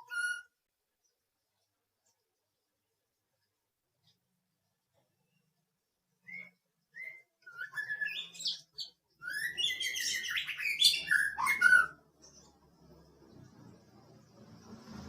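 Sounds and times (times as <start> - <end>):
bird chirping and twittering: 0.0 - 0.5, 6.2 - 14.8.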